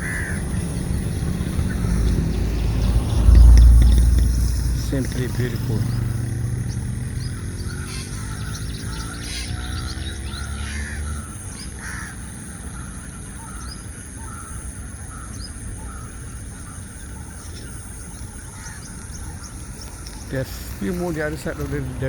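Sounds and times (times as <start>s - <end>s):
birds harsh calls: 0.0s - 22.0s
birds high chirps: 0.0s - 22.0s
steady hiss: 19.5s - 22.0s.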